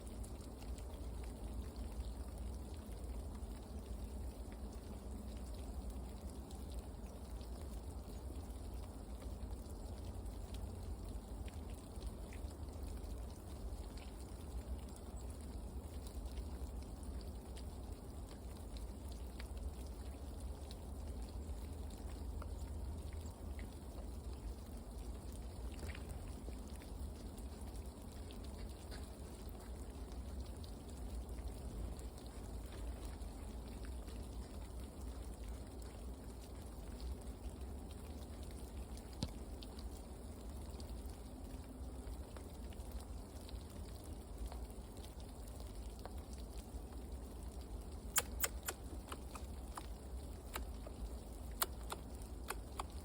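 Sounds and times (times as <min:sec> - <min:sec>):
faint short ticks: 0:48.1 - 0:49.9, 0:50.5 - 0:53.0.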